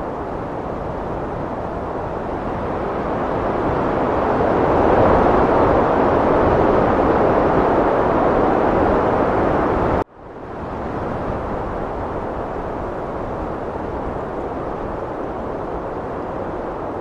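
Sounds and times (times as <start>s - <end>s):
heavy wind blowing: 0.0s - 17.0s.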